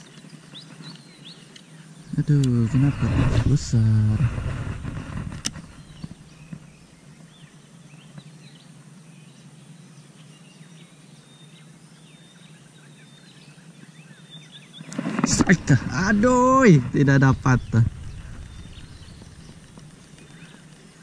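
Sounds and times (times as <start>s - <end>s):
faint bird chirps: 5.5s - 21.0s
low steady hum: 15.2s - 21.0s.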